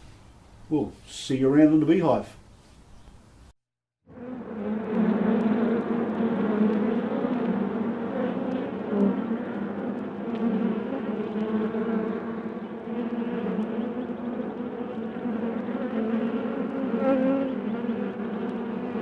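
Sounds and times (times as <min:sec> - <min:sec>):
bees buzzing: 0:04.1 - 0:19.0.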